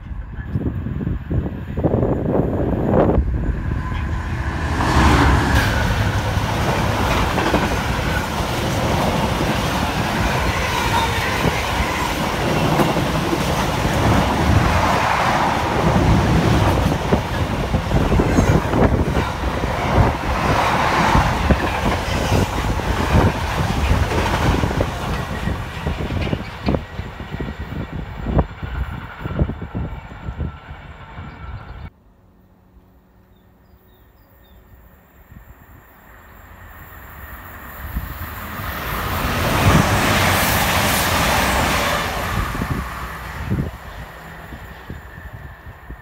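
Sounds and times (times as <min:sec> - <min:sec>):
train wagons clacking over rails: 0:03.7 - 0:28.5.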